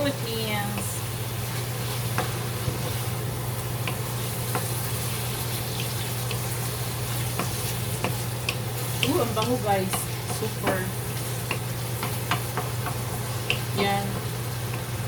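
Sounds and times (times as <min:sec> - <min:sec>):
food sizzling in a pan: 0:00.0 - 0:15.0
utensil tapping a pan: 0:03.8 - 0:04.7, 0:07.3 - 0:13.7.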